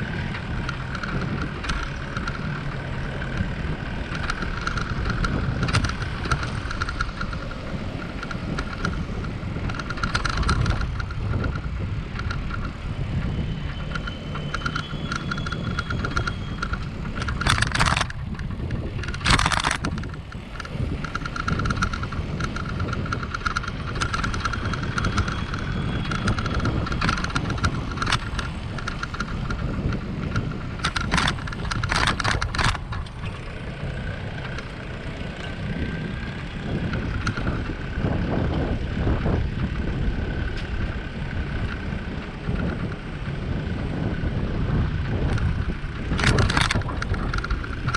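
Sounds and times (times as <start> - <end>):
bicycle tyres rumbling: 0.0 - 47.9
wind: 0.0 - 47.9
short rattling bursts: 14.0 - 35.0.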